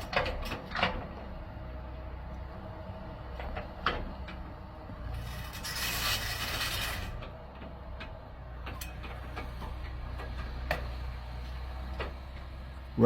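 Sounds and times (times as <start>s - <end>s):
excavator diesel engine running: 0.0s - 13.0s
digging clanks: 5.4s - 11.0s.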